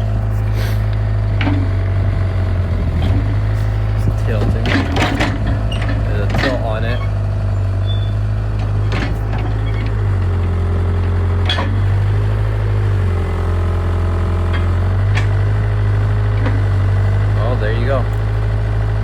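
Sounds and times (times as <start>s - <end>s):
excavator engine running: 0.0s - 19.0s
sharp metallic knocks: 4.3s - 6.8s.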